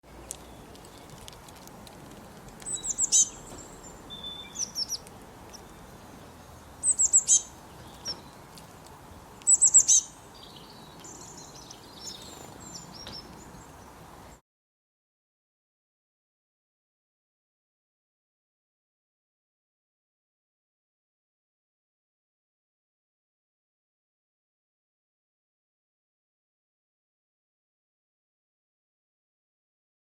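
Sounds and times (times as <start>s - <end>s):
small birds chirping: 0.0s - 14.4s.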